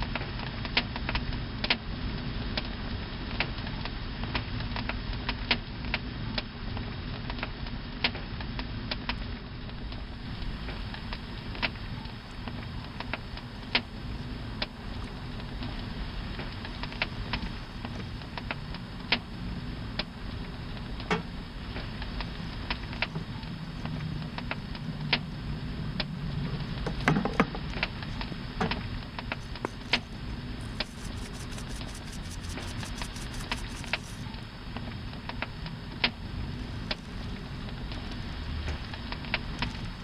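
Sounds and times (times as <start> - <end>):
wood crackling and popping: 3.4 - 40.0
campfire hiss: 9.2 - 40.0.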